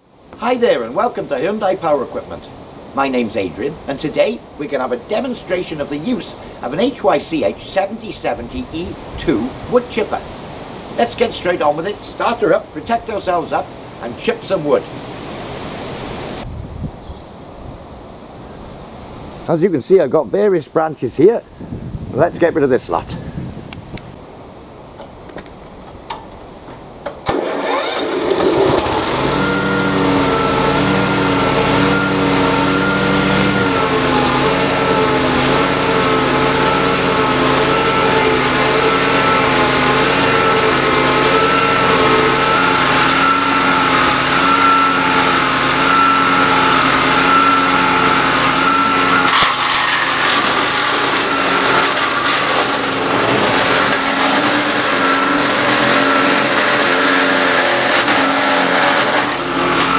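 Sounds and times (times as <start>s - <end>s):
wood chipper engine running: 4.8s - 14.8s, 27.1s - 59.9s.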